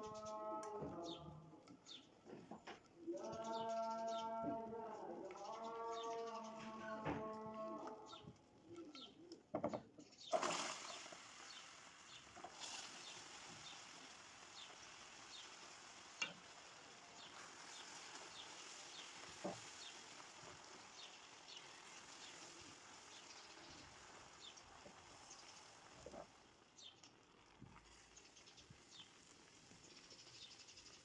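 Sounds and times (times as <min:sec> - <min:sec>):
bird chirping: 0:03.0 - 0:10.4
faint hiss: 0:10.2 - 0:31.0.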